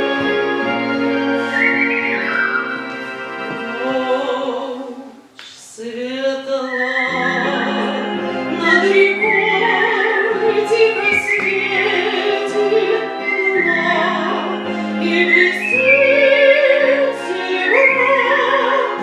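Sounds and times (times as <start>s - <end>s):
whistled melody with vibrato: 0.0s - 4.5s, 6.5s - 19.0s
sustained accompaniment chords: 0.0s - 5.2s, 7.1s - 19.0s
woman singing: 3.6s - 19.0s.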